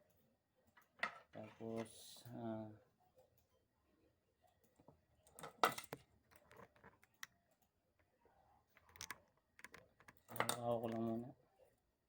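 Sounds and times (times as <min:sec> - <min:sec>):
clicks and clatter of handling: 0:05.3 - 0:07.4, 0:08.7 - 0:11.2.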